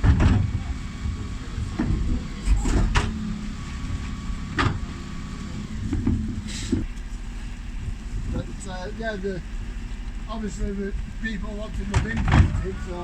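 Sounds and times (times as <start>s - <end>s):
garbage truck engine running: 0.0s - 13.0s
metallic knocks and clanks: 11.0s - 12.7s.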